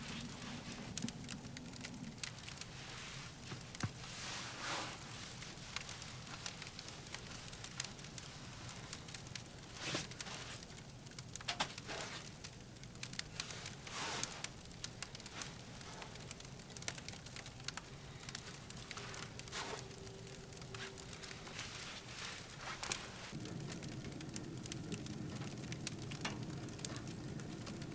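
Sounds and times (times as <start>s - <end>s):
firewood crackling in a stove: 0.0s - 27.9s.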